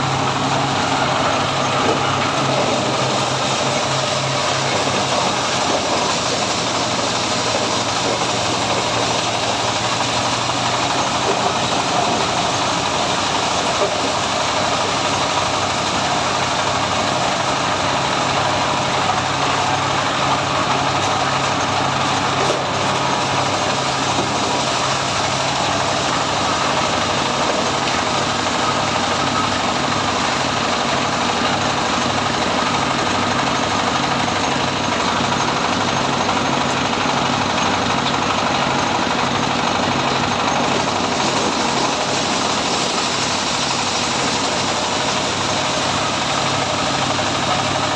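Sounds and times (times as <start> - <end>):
threshing drum and blowers hissing: 0.0 - 47.9.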